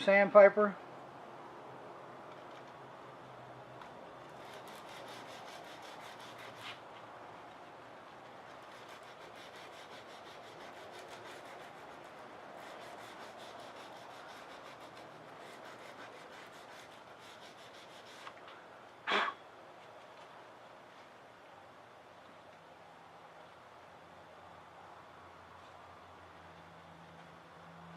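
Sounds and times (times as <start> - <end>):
sandpaper rubbing in wood groove: 4.4 - 7.0, 8.1 - 18.4.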